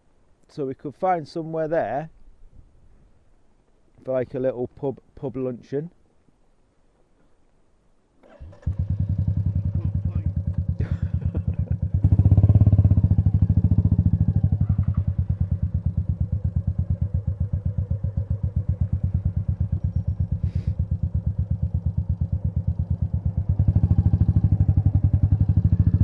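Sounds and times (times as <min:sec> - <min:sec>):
motorcycle engine thumping: 0:09.1 - 0:22.3.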